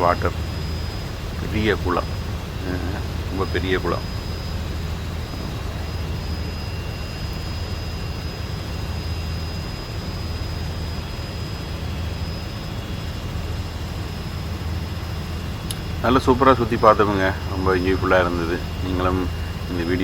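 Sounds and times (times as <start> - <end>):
faint high whine: 0.0 - 20.0
helicopter engine and rotor drone: 0.0 - 20.0.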